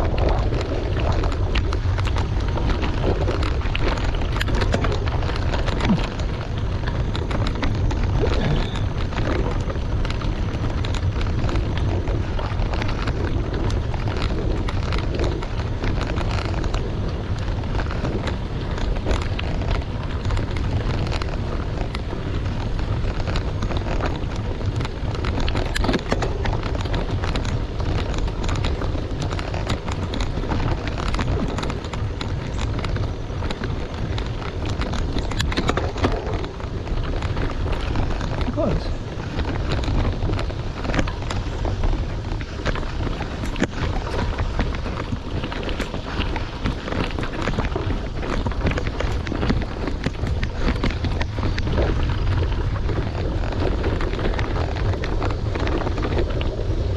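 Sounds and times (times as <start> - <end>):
bicycle tyres on gravel: 0.0 - 56.9
wind buffeting microphone: 0.0 - 56.9.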